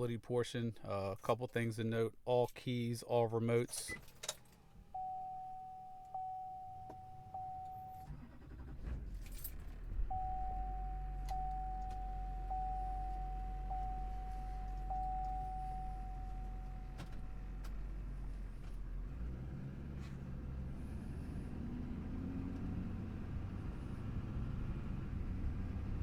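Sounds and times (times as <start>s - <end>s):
diesel engine starting and idling: 3.9s - 26.0s
dashboard warning chime: 4.9s - 8.5s, 10.1s - 17.6s.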